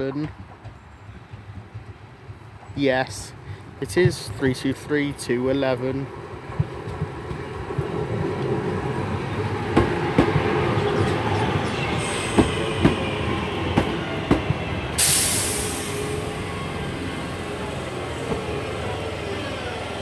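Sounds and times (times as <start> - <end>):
train rumbling into platform: 0.0 - 20.0
air brake hiss: 12.0 - 12.8, 15.0 - 16.2.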